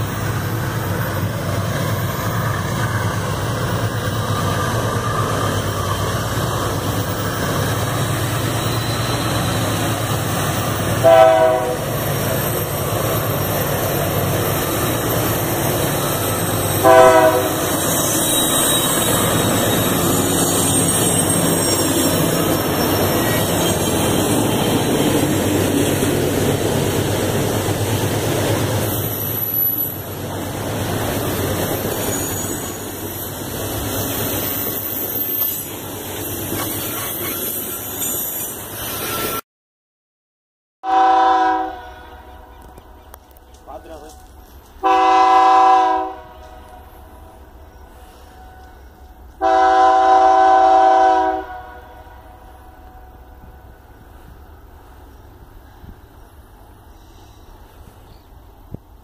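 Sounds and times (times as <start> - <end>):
high-pitched wheel squeal: 8.2 - 10.3, 17.6 - 24.9, 31.6 - 39.4
train horn blasts: 11.0 - 11.9, 16.8 - 19.2, 40.8 - 42.6, 44.8 - 47.2, 48.1 - 53.3.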